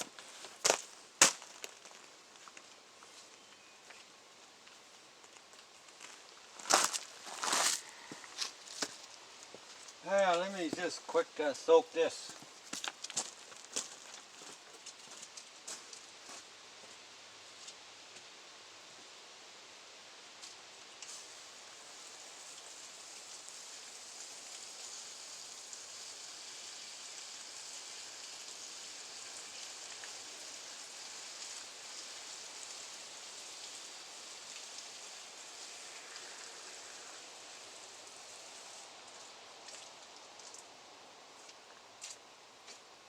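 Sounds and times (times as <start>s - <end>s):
water running over a pot: 20.1s - 43.0s.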